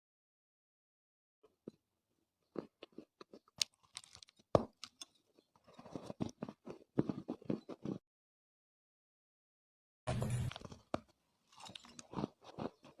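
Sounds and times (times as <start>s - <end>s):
clay crunching as chewed: 2.4s - 8.0s, 10.5s - 13.0s.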